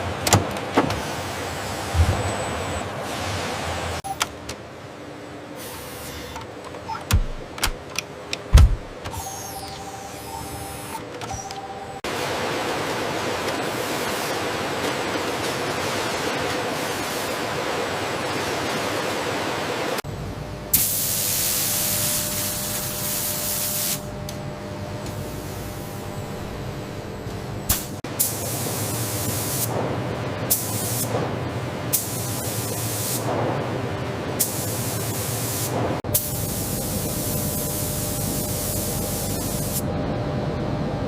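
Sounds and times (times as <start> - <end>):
machine hum: 0.0 - 20.9.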